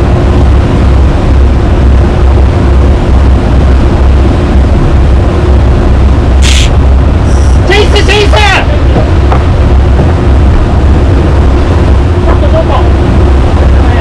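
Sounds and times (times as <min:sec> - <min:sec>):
boat engines droning: 0:00.0 - 0:14.0
rushing noise: 0:00.0 - 0:14.0
brief hiss: 0:06.4 - 0:07.6.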